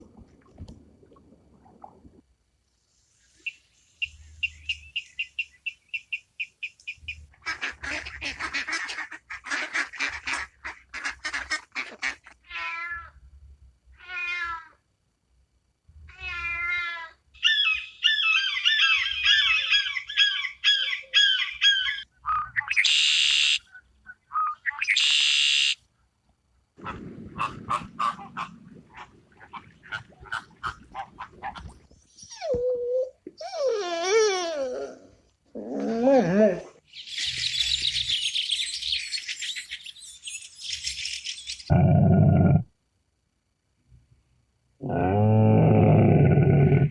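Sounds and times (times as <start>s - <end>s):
duck quacking: 7.3s - 12.4s, 26.8s - 31.6s
meow-like calls: 12.4s - 13.2s, 14.0s - 14.8s, 16.1s - 17.2s.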